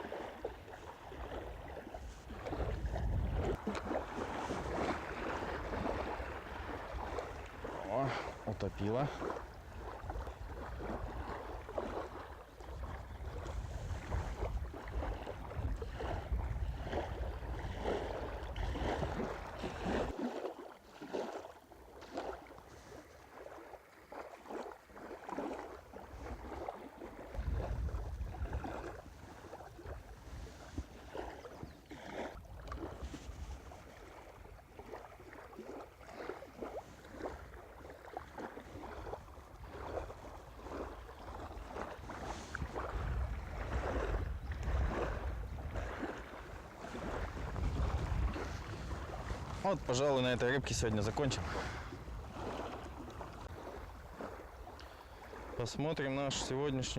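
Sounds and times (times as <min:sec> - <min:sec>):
wind buffeting microphone: 0:00.4 - 0:20.2, 0:26.1 - 0:31.8, 0:38.6 - 0:55.6.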